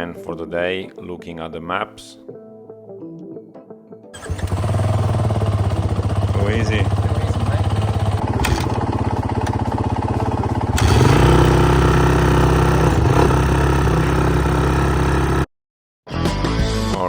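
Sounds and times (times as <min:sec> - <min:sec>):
dirt bike engine revving: 0:04.2 - 0:15.5.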